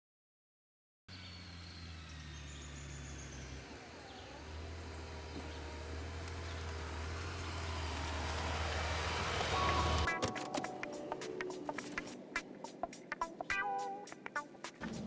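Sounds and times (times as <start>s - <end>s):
faint birds chirping: 1.1s - 10.2s
vehicle engine humming: 1.1s - 10.7s.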